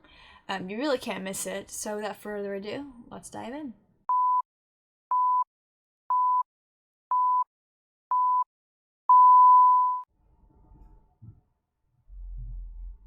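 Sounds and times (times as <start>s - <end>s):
long electronic beep: 9.1s - 10.1s
short electronic beeps: 9.1s - 10.1s.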